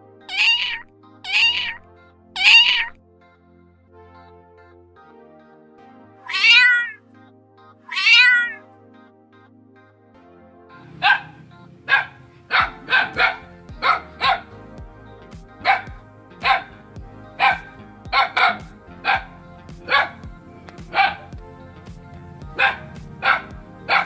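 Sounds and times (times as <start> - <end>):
background music: 0.0 - 24.0
cat meowing: 0.3 - 1.8
dog barking: 2.4 - 2.9, 11.0 - 14.4, 15.6 - 15.8, 16.4 - 16.7, 20.9 - 21.2, 22.6 - 24.0.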